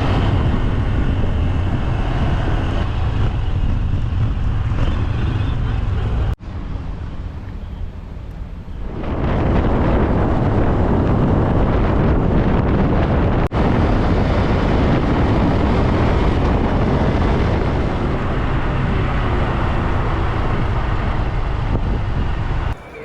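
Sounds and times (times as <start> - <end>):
motorcycle running: 0.0 - 7.0, 12.4 - 23.0
wind buffeting microphone: 0.0 - 23.0.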